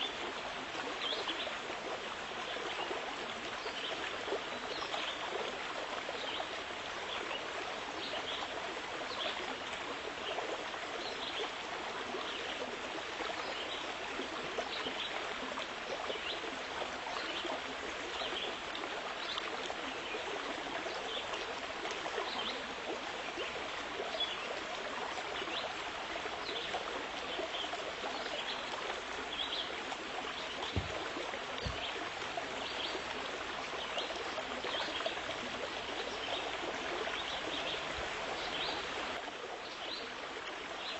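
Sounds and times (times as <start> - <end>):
small stream trickling: 0.0 - 40.9
low knocks: 30.7 - 31.9.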